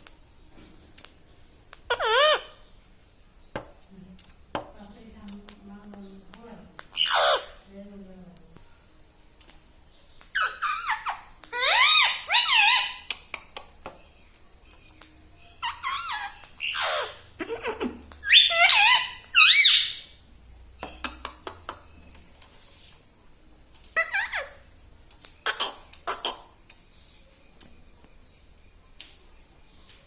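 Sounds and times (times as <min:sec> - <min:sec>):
parrot squawking: 0:01.9 - 0:02.6, 0:06.9 - 0:07.6, 0:10.4 - 0:13.1, 0:15.6 - 0:20.0, 0:24.0 - 0:24.6.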